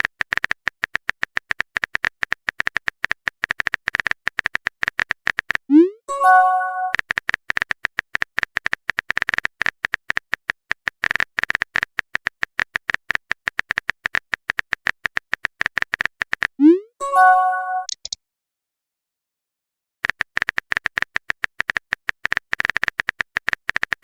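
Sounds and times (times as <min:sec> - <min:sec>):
chat message notification tone: 0:05.7 - 0:07.0, 0:16.6 - 0:18.1
phone keyboard typing clicks: 0:06.3 - 0:16.6, 0:17.5 - 0:18.2, 0:20.0 - 0:24.0.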